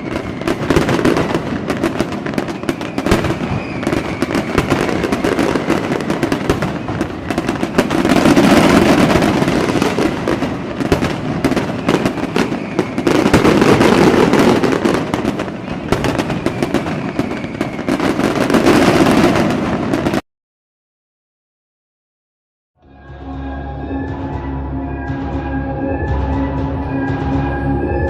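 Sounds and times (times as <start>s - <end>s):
fireworks popping and crackling: 0.0s - 20.2s.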